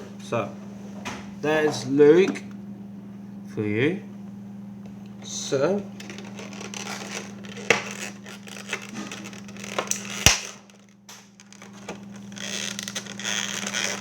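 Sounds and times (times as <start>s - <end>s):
steady low hum: 0.0s - 14.0s
handling toy packaging: 5.9s - 14.0s.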